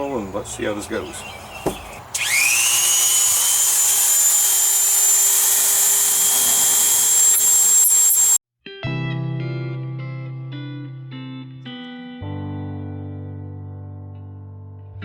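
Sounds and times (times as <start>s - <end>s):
rotary tool high-pitched whine: 2.1s - 8.4s.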